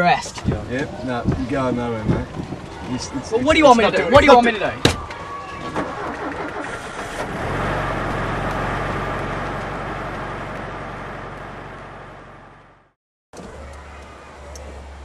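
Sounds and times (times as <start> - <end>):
car engine starting and running: 5.6 - 15.0.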